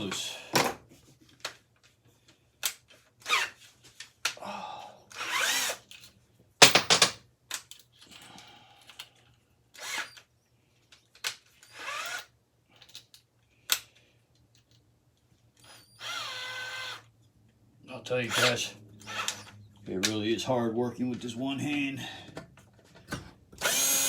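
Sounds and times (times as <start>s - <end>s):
power drill spinning: 5.1s - 5.8s, 9.8s - 10.2s, 11.6s - 12.3s, 15.6s - 17.1s, 18.2s - 19.7s, 23.6s - 24.0s
metal parts clicking and knocking: 5.9s - 8.2s.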